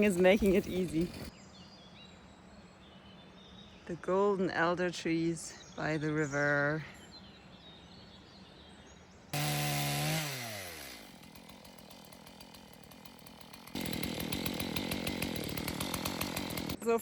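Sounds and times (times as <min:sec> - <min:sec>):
chainsaw revving: 0:00.0 - 0:01.3, 0:09.4 - 0:16.8.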